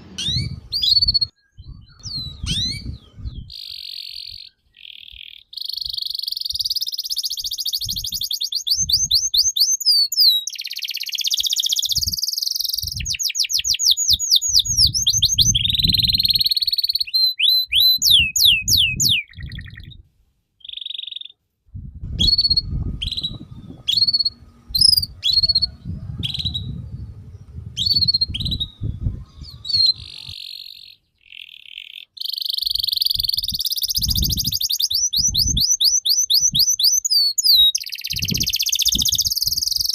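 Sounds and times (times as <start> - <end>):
low rumbling noise: 0.0 - 3.5, 21.7 - 30.4
songbird singing trills: 0.0 - 20.0, 20.6 - 21.4, 22.1 - 39.9.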